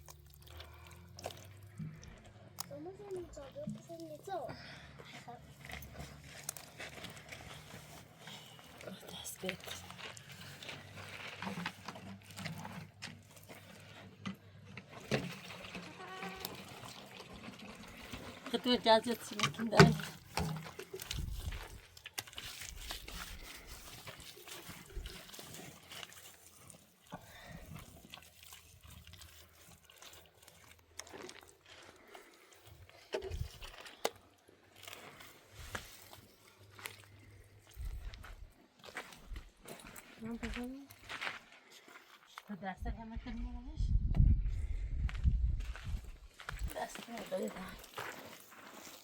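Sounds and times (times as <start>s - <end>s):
footsteps on rocky ground: 5.0s - 14.7s, 18.6s - 26.6s, 29.7s - 49.0s.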